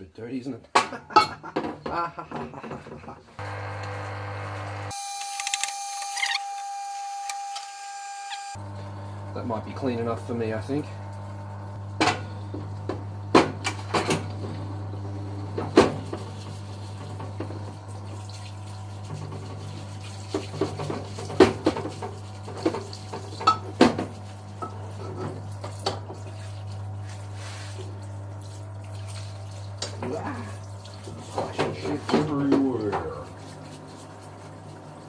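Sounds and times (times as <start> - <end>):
water splashing and sloshing: 15.5 - 35.0.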